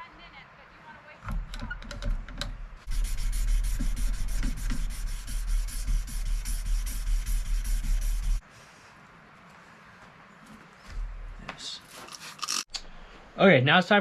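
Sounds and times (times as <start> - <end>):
sandpaper rubbing on knife blade: 2.9 - 8.4.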